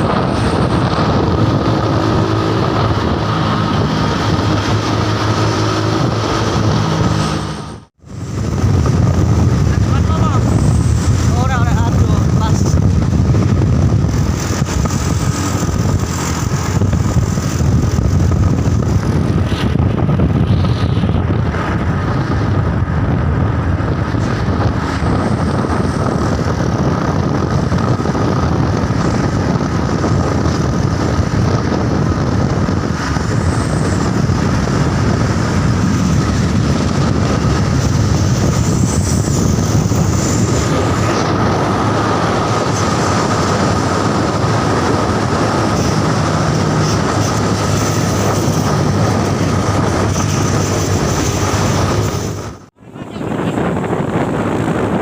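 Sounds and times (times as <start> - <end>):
heavy truck driving: 0.0 - 55.0.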